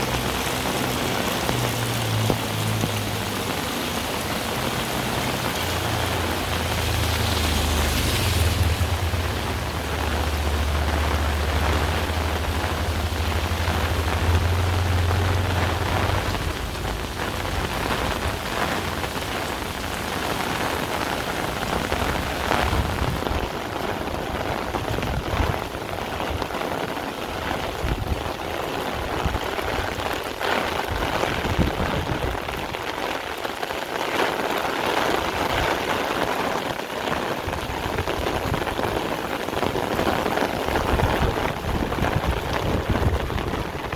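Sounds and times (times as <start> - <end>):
heavy rain falling: 0.0 - 43.9
low rumble: 4.8 - 19.9.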